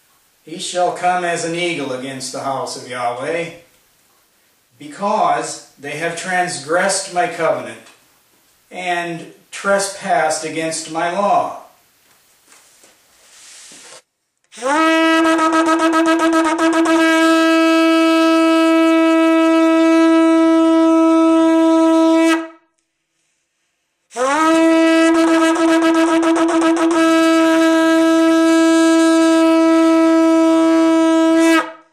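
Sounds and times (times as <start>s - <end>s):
shofar blasts: 14.5s - 22.7s, 24.1s - 31.9s.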